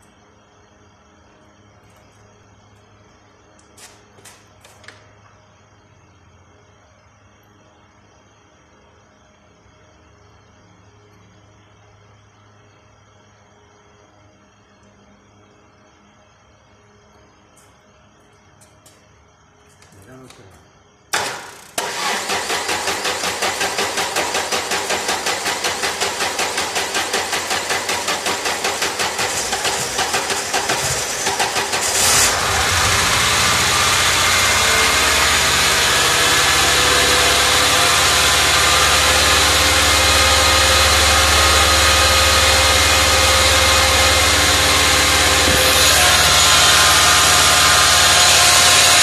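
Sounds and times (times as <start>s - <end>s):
car engine cranking and starting: 21.2s - 49.0s.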